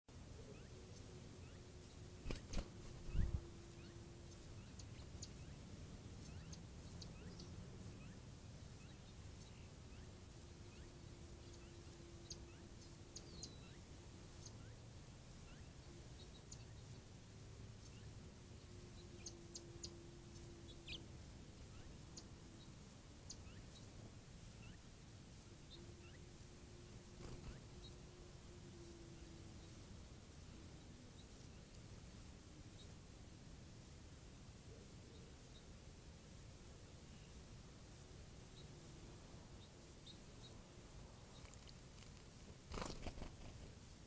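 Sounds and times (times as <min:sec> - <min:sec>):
faint low hum: 0:00.1 - 0:44.0
small bird chirps: 0:00.4 - 0:14.8, 0:15.4 - 0:17.1, 0:17.8 - 0:24.0, 0:24.6 - 0:24.9, 0:25.6 - 0:28.0, 0:41.2 - 0:43.6.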